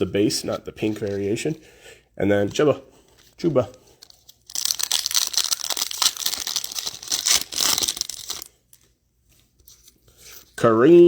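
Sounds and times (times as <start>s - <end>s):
wrapper tearing and crinkling: 4.0s - 8.6s.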